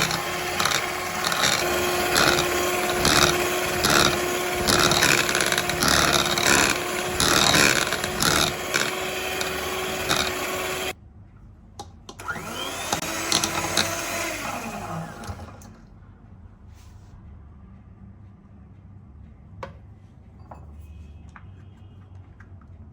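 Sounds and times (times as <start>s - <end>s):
kitchen handling sounds: 0.0s - 10.9s
electric kitchen motor humming: 0.0s - 11.0s, 12.2s - 15.8s.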